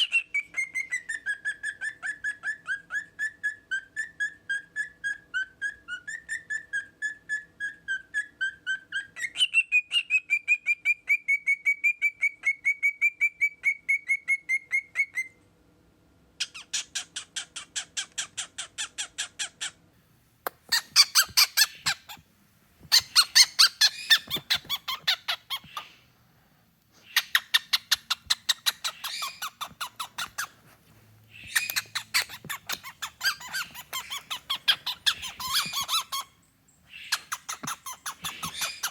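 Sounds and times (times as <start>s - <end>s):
cockatiel chirping: 0.0s - 15.4s, 16.4s - 19.8s, 20.5s - 22.2s, 22.8s - 26.0s, 27.0s - 38.9s
cockatiel raspy chatter: 31.4s - 36.3s, 37.1s - 38.9s.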